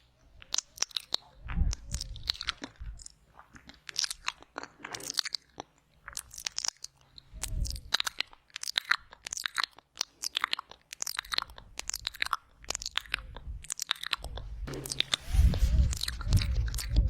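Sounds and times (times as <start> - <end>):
wet mouth clicks and smacks: 0.4 - 14.5
low rumble: 14.7 - 17.0.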